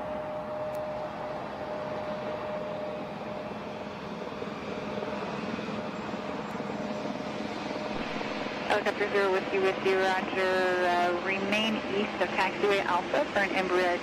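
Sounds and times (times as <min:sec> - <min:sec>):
jet engine whine: 0:00.0 - 0:14.0
jet engines rushing: 0:00.0 - 0:14.0.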